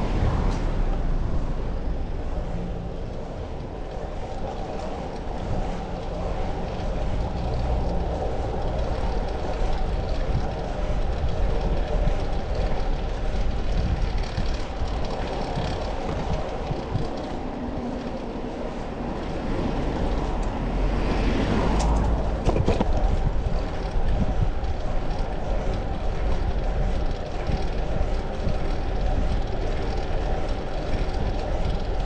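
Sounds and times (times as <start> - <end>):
bicycle road noise: 0.0 - 32.0
wind rushing: 5.4 - 30.4.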